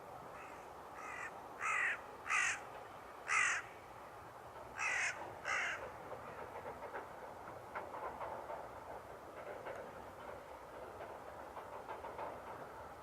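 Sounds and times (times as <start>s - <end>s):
crow cawing: 0.4s - 2.6s, 3.3s - 3.7s, 4.8s - 5.8s.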